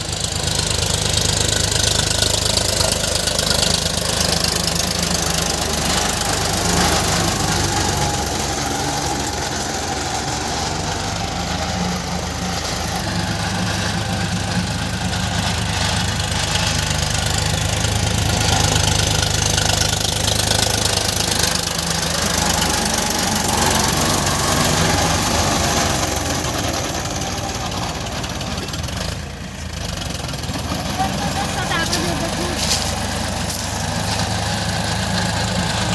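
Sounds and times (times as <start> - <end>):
tractor engine running: 0.0 - 35.9.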